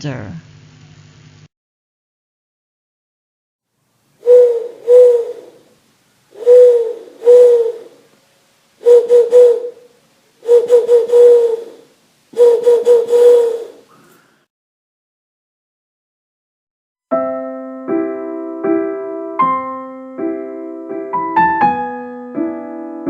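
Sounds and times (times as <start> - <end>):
owl hooting: 4.2 - 5.7, 6.3 - 8.1, 8.8 - 14.4.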